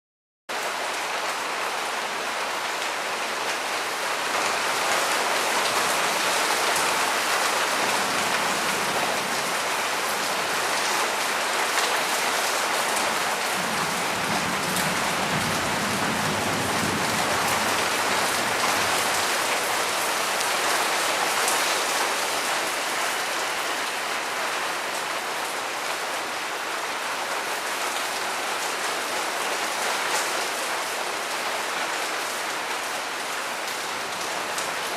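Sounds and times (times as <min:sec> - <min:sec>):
heavy rain: 0:00.5 - 0:34.9.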